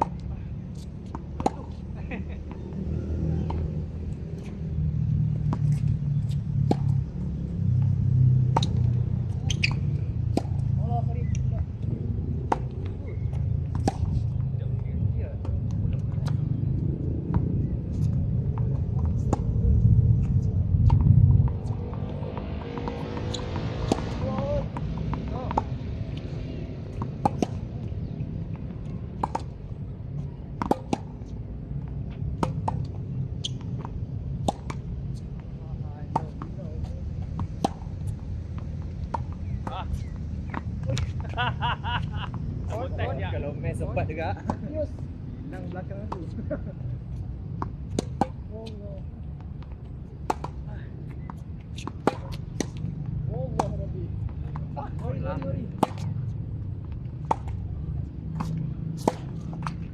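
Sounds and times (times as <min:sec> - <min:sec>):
steady low rumble: 0:10.0 - 0:22.9.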